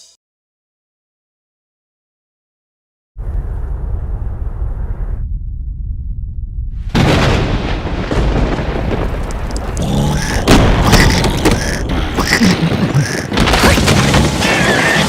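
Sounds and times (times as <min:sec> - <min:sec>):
squeaky character vocalizations: 0:09.8 - 0:15.0.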